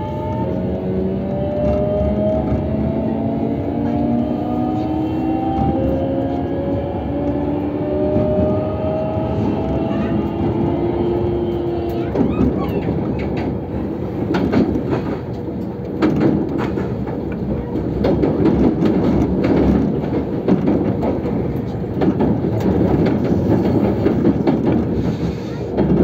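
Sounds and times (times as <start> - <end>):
train wheels rumbling on rail: 0.0 - 26.0
rail joint clicks: 0.1 - 26.0.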